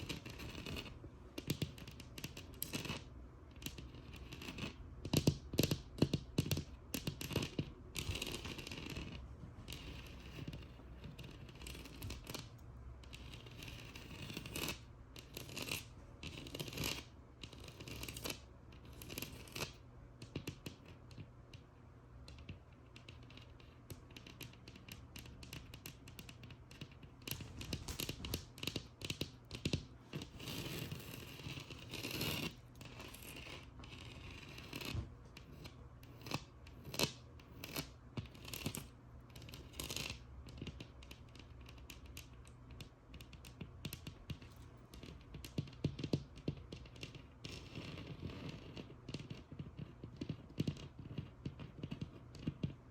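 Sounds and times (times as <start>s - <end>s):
fingernails tapping on wall: 19.0s - 52.9s.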